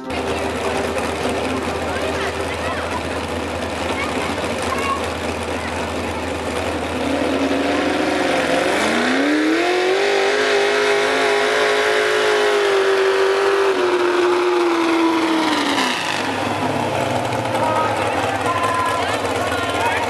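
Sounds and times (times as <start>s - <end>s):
truck engine revving hard: 0.0s - 20.0s.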